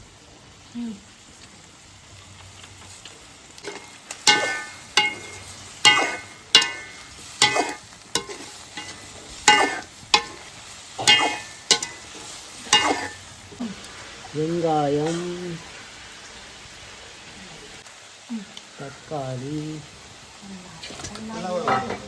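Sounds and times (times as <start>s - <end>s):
metal spoon clinking in pot: 4.3s - 10.4s, 11.0s - 12.0s.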